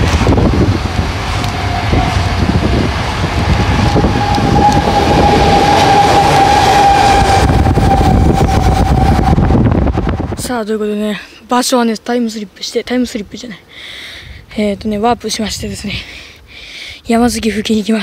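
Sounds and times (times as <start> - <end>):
train rumbling past: 0.0 - 10.8
high train wheel squeal: 0.2 - 10.4.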